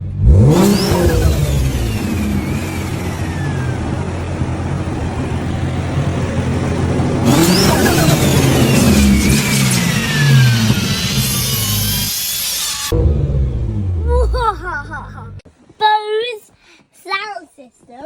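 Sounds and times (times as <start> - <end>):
car engine revving: 0.0 - 15.4
turbo whine: 0.3 - 14.4.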